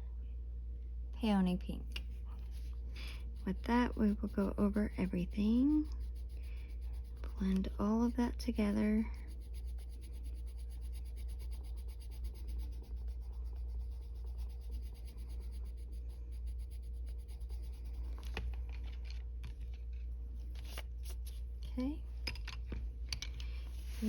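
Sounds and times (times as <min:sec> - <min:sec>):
steady low hum: 0:00.0 - 0:24.0
colored pencil scratching on paper: 0:02.0 - 0:18.8, 0:19.9 - 0:21.5.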